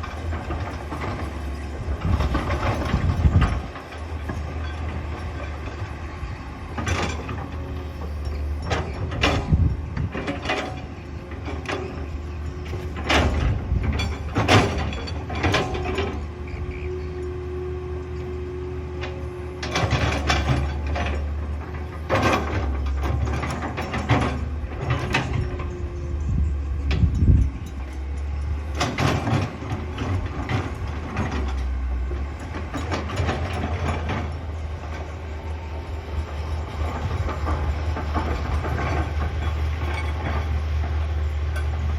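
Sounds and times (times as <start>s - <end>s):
excavator diesel engine: 0.0s - 41.9s
metallic clanks and knocks: 6.7s - 16.3s, 19.0s - 35.3s, 36.1s - 41.9s.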